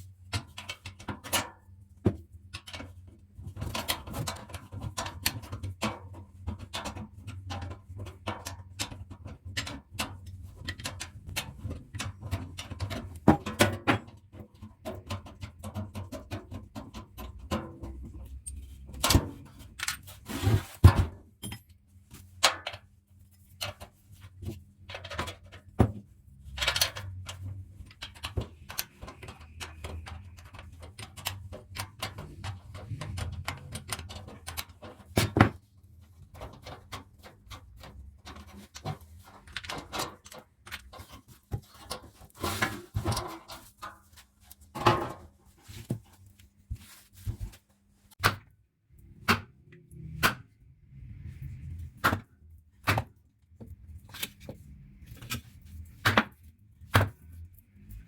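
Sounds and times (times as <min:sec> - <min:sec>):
hand tools clicking and knocking: 0:23.5 - 0:35.6.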